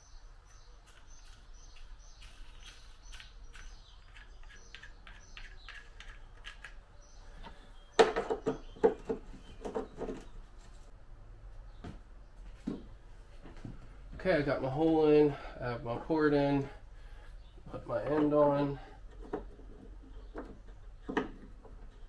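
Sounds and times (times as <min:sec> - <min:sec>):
small bird chirping: 0:00.0 - 0:10.5, 0:19.1 - 0:22.0.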